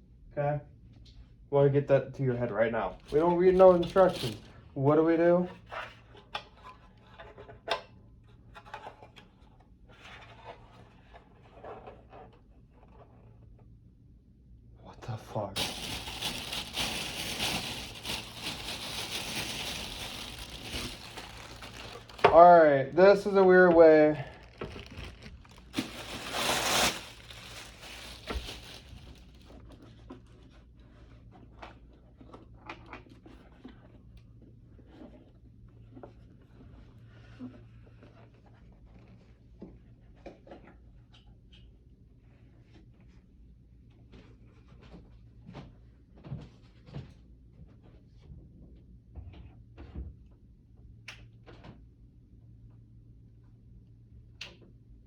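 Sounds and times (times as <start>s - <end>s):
plastic parts rubbing and scraping: 3.0s - 4.5s, 15.6s - 30.4s
packaging rustling: 3.0s - 4.6s, 15.6s - 29.8s.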